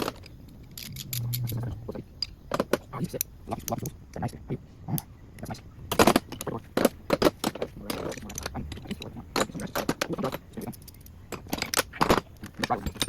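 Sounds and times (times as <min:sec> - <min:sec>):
metal hand tools clinking: 0:00.0 - 0:02.4, 0:05.9 - 0:13.0.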